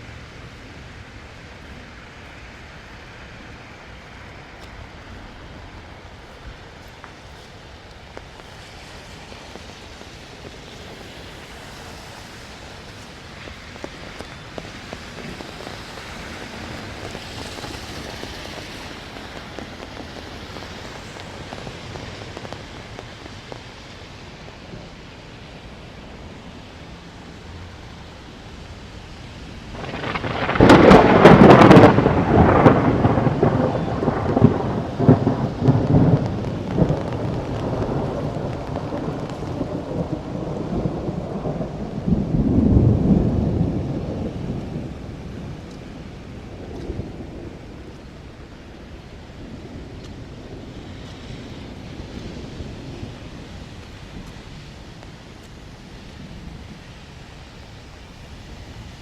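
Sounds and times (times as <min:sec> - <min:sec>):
rain falling: 0:00.0 - 0:59.0
thunderclap rumbling: 0:07.6 - 0:25.0, 0:29.6 - 0:57.7.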